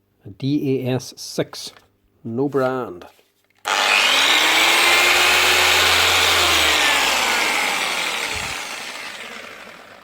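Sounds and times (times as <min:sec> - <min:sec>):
polisher motor spinning: 0:03.6 - 0:10.0.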